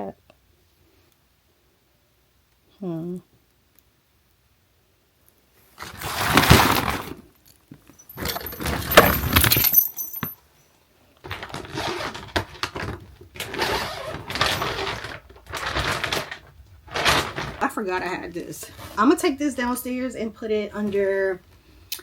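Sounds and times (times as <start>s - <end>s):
decorations rustling and clinking: 7.7s - 10.4s.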